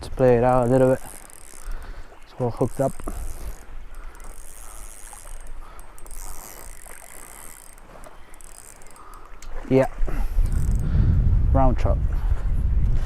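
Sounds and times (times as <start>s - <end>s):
fishing reel whirring: 0.0s - 11.1s
wind rumble on microphone: 9.5s - 13.0s.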